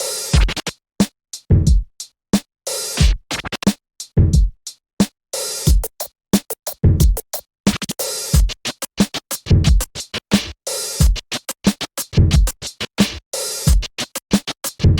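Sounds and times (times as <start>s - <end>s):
electronic music with drum machine: 0.0s - 0.7s.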